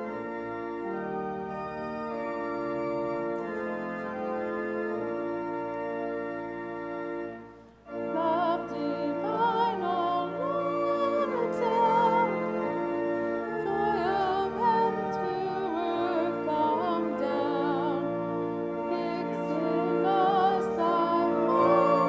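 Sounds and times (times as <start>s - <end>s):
church organ chords: 0.0s - 22.0s
person singing with vibrato: 8.1s - 12.8s, 13.6s - 18.2s, 18.9s - 22.0s.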